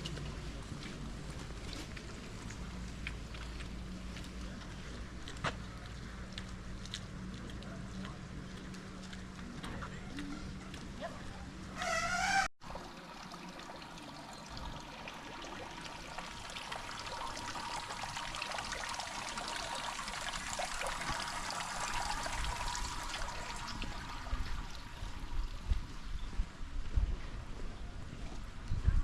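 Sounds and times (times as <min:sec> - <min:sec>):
water trickling and splashing: 0:00.0 - 0:27.5
short wavering call: 0:11.8 - 0:12.5.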